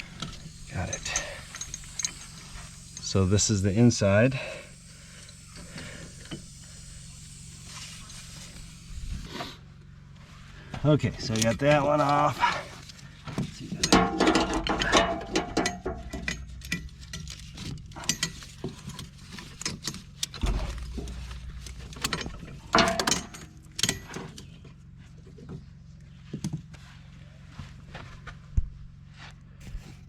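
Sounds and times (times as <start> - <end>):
metal track links clanking: 0.0 - 3.6, 13.6 - 24.5.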